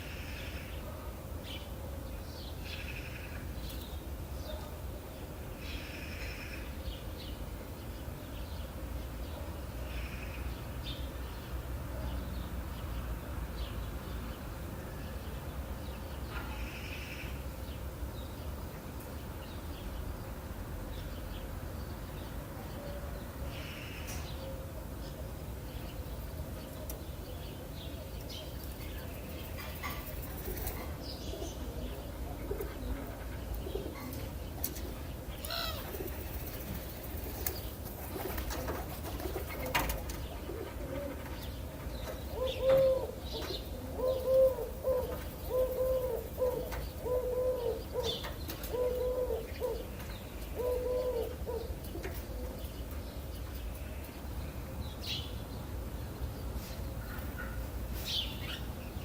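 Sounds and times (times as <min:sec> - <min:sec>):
small birds chirping: 0:00.0 - 0:59.0
dove cooing: 0:29.8 - 0:34.3, 0:35.4 - 0:36.5, 0:37.3 - 0:41.5, 0:42.3 - 0:52.7.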